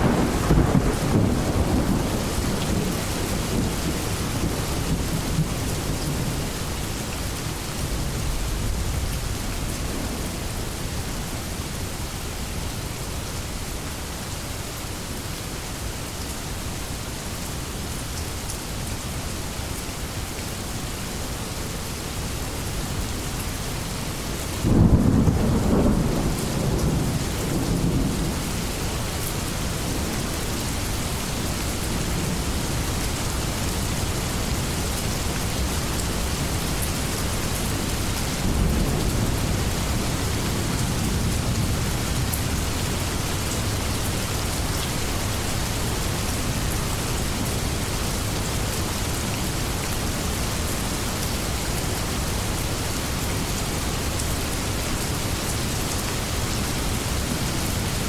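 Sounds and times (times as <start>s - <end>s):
thunder rumbling: 0.0s - 11.8s
heavy rain falling: 0.0s - 58.0s.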